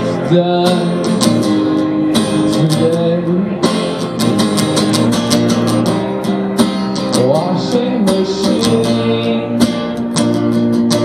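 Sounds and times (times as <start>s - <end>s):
man singing: 0.0s - 4.2s, 7.0s - 10.0s
strummed guitar: 0.0s - 11.0s.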